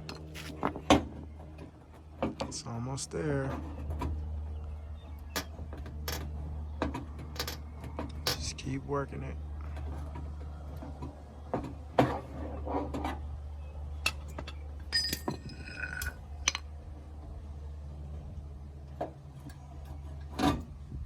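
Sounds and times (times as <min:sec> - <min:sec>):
steady low hum: 0:00.0 - 0:21.0
short ringing squeaks: 0:14.8 - 0:16.2.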